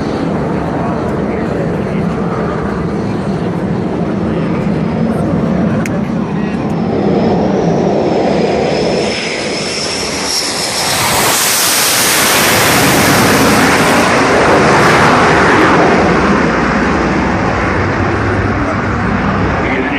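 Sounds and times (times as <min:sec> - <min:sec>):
jet engine whine: 0:00.0 - 0:19.9
jet passing with loud rushing: 0:00.0 - 0:19.9.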